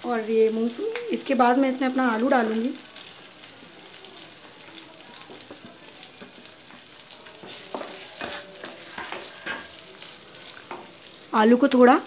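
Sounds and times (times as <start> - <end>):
potatoes sizzling in hot fat: 0.0 - 12.0
wooden spatula scraping pan: 7.4 - 9.8.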